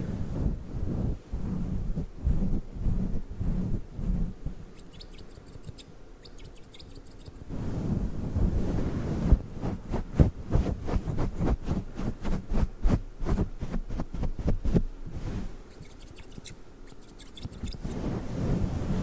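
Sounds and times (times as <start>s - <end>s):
dull rustling: 6.5s - 19.0s.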